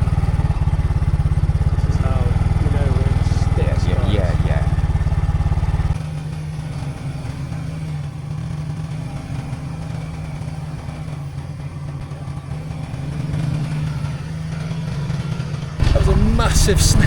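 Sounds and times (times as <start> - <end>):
motorbike engine rumbling: 0.0 - 17.0.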